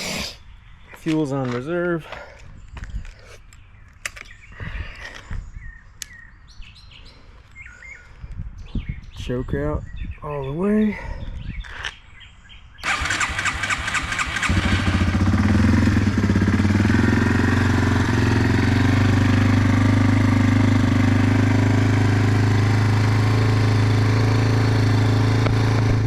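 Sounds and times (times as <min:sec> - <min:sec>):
motorcycle engine starting and idling: 0:12.8 - 0:26.0.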